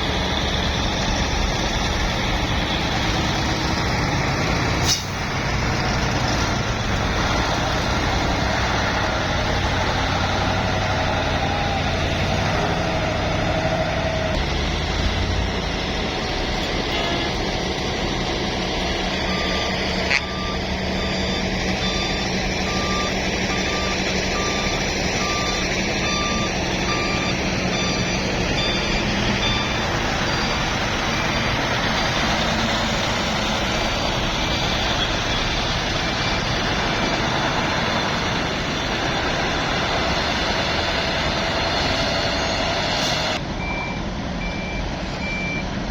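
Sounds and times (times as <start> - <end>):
diesel truck engines running: 0.0 - 45.9
reversing alarm beeping: 19.0 - 43.0, 43.6 - 45.7.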